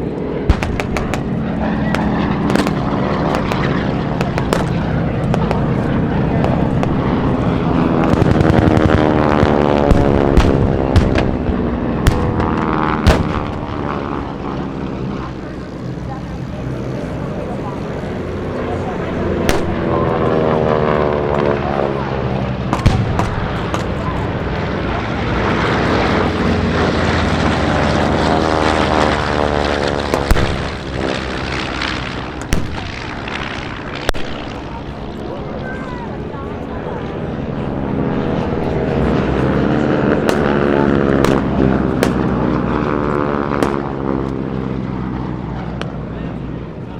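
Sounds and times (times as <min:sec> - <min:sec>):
propeller plane engine drone: 0:00.0 - 0:46.9
sharp bangs: 0:00.4 - 0:14.2, 0:19.4 - 0:20.3, 0:22.6 - 0:34.8, 0:40.2 - 0:42.7, 0:43.5 - 0:44.1
gunfire crackle: 0:00.5 - 0:07.1, 0:08.0 - 0:09.2, 0:09.9 - 0:13.9, 0:19.4 - 0:19.9, 0:22.7 - 0:24.3, 0:30.0 - 0:34.6, 0:40.2 - 0:42.4, 0:43.6 - 0:43.9.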